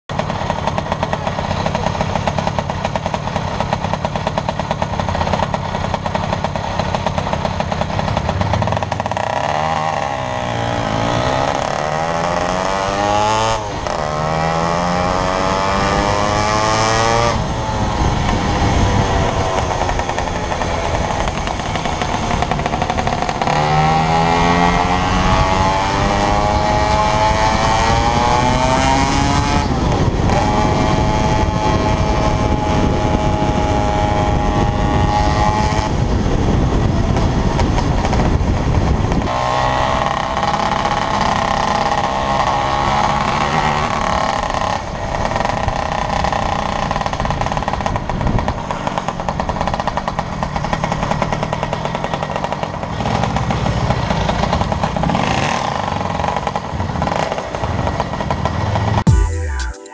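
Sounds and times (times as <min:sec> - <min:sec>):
scooter engine revving: 0:00.1 - 0:59.4
wind noise on microphone: 0:07.9 - 0:49.6.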